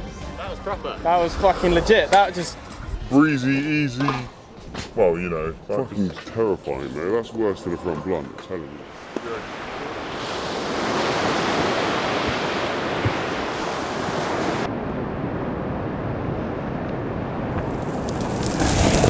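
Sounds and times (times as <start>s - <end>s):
sea waves breaking: 8.8s - 14.7s, 17.6s - 19.0s.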